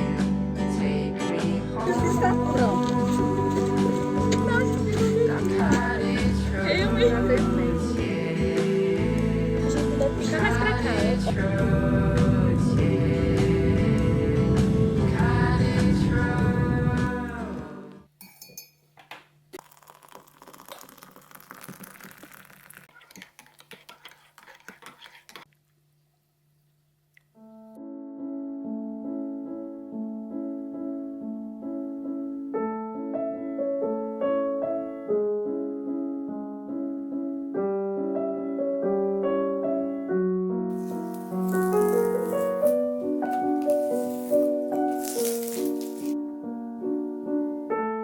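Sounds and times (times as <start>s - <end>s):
piano music: 1.8s - 17.9s, 27.4s - 48.0s
background noise: 16.7s - 27.8s.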